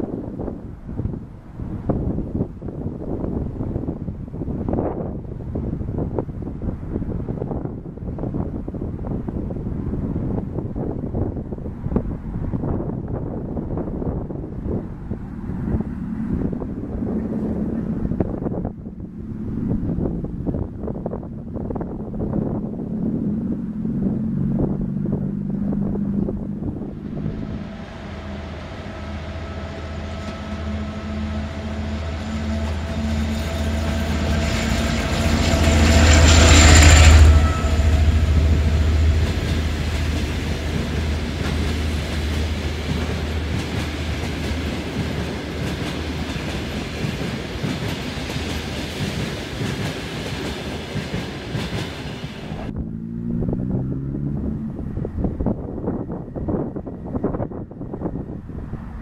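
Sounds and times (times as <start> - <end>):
train rumbling with rail clatter: 0.0 - 59.0
diesel engine pulling: 14.4 - 57.2.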